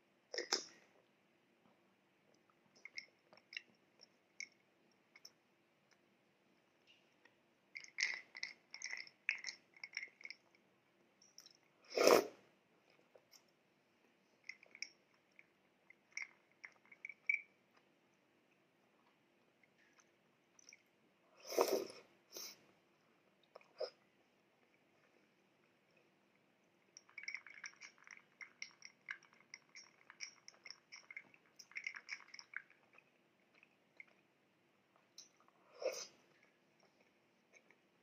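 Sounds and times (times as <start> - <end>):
wet mouth clicks: 0.3 - 0.8
chewing soaked bread: 23.2 - 38.0.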